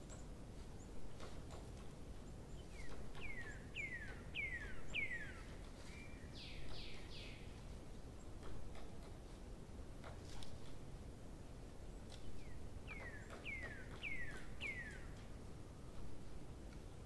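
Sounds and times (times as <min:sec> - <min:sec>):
songbird calling: 0:00.0 - 0:07.6, 0:11.9 - 0:15.3.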